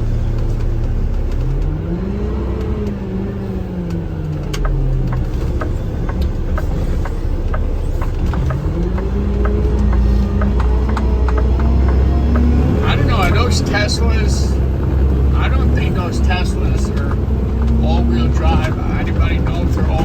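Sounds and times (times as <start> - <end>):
garbage truck engine revving: 0.0 - 20.0
regular ticking: 0.0 - 20.0.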